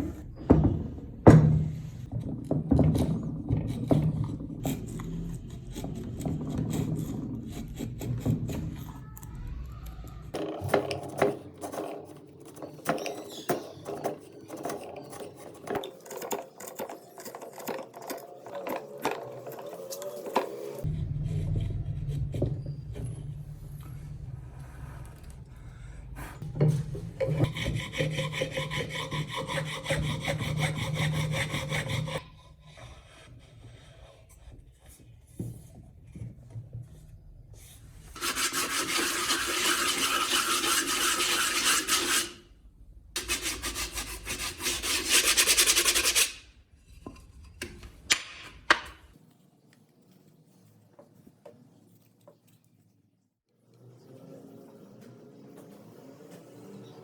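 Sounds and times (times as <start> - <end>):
abrasive tool rasping: 3.6 - 9.3, 11.6 - 19.8, 27.2 - 34.6, 38.2 - 42.5.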